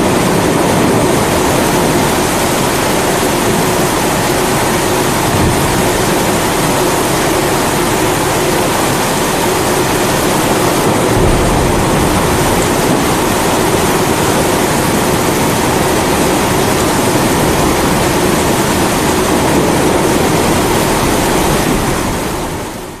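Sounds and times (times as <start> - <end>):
heavy rain: 0.0 - 23.0
deep low rumble: 11.0 - 14.8.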